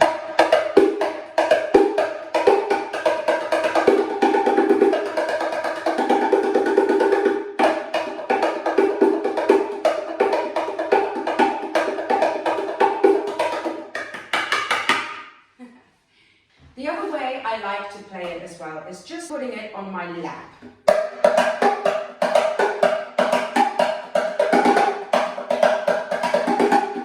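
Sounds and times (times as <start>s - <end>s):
hand-played box drum groove: 0.0s - 15.2s, 20.6s - 27.0s.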